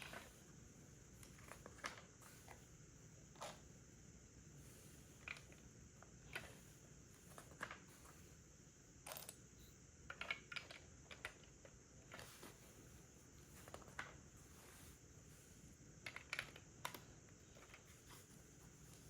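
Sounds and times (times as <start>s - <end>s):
plastic bricks clicking together: 10.1s - 12.3s.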